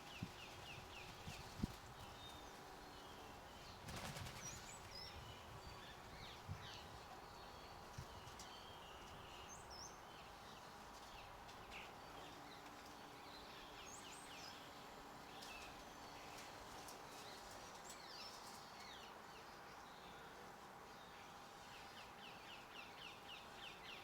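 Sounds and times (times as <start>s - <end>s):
wings fluttering: 3.8s - 5.0s.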